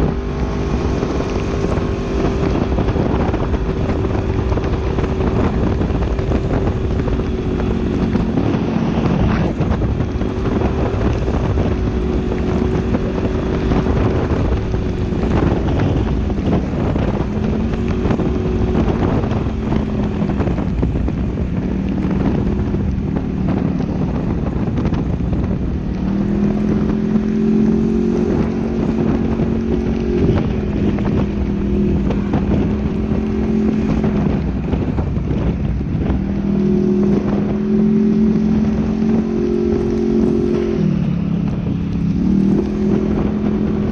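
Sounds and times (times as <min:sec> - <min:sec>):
wind noise on microphone: 0:00.0 - 0:43.9
engine revving up and down: 0:23.5 - 0:43.9.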